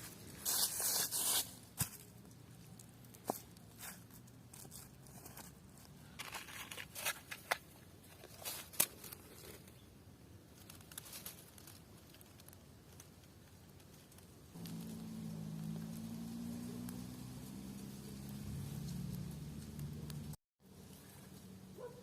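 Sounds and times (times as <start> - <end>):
rustling handling noises: 0.0 - 9.8, 10.5 - 14.9
sharp crackles and snaps: 10.5 - 20.4.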